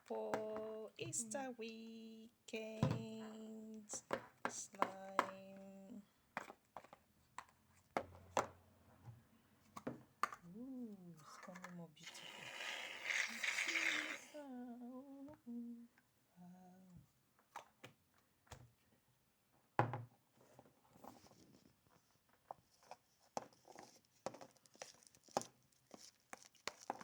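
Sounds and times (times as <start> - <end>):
person humming: 13.2 - 17.0.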